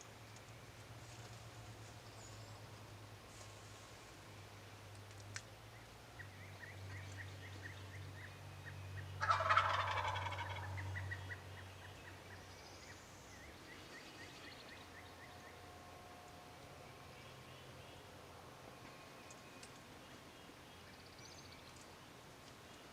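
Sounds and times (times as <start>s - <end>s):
turkey gobbling: 9.2s - 11.4s.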